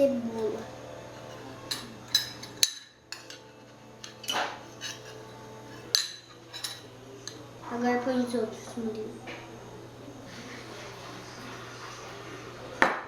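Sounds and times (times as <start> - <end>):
spoon clinking against bowl: 5.9 - 7.4.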